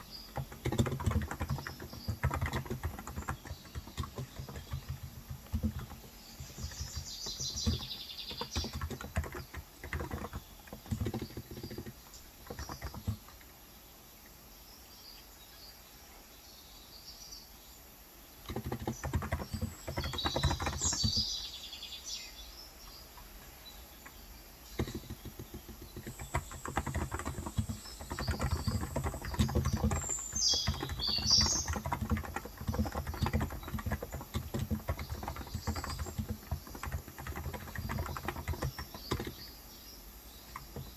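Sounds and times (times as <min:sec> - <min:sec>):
birds chirping: 0:00.0 - 0:40.9
keyboard key clicks: 0:00.3 - 0:13.5, 0:18.5 - 0:21.3, 0:24.0 - 0:39.4.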